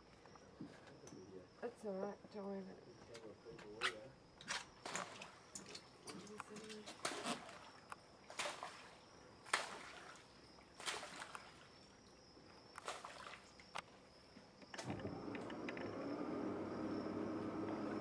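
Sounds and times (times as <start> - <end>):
high drone of insects: 0.0 - 18.0
low motor hum: 14.8 - 18.0.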